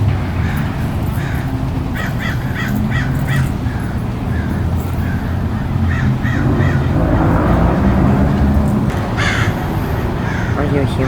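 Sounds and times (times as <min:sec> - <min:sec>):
bird calling: 0:00.4 - 0:11.0
steady low rumble: 0:04.3 - 0:11.0.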